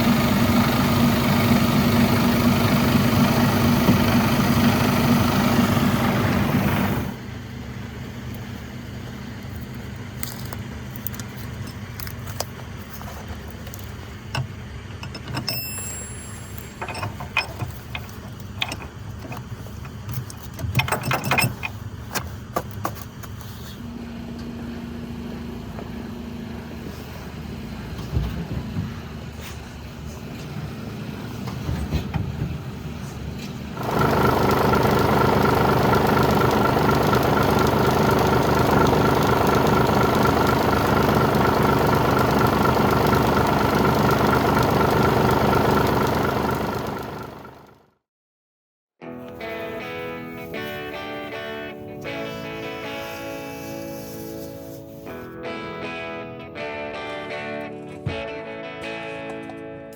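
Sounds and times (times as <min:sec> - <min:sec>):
truck engine idling: 0:00.0 - 0:15.0, 0:32.5 - 0:47.8
metallic jingle: 0:15.4 - 0:17.6.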